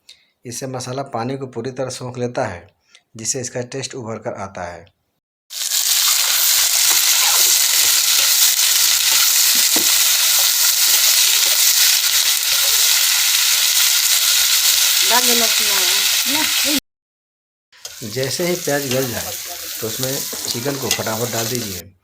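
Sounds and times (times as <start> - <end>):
onions sizzling in hot oil: 5.5 - 16.8, 17.8 - 21.8.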